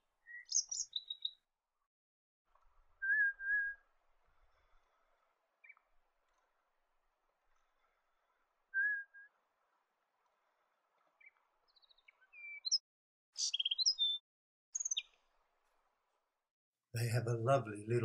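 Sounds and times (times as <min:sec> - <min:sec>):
bird whistling and chirping: 0:00.3 - 0:01.4, 0:03.0 - 0:03.8, 0:08.7 - 0:09.3, 0:11.2 - 0:12.8, 0:13.4 - 0:14.2, 0:14.8 - 0:15.1.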